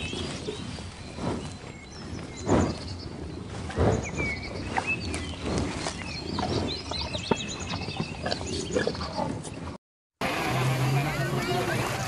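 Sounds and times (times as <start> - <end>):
zebras munching hay: 0.0 - 9.6
small birds chirping: 0.0 - 9.8.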